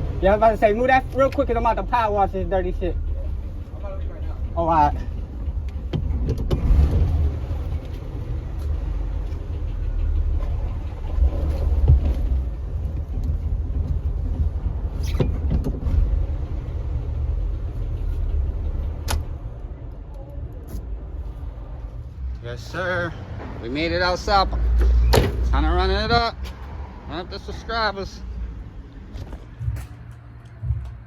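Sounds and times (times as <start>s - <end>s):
car engine low rumble: 0.0s - 31.0s.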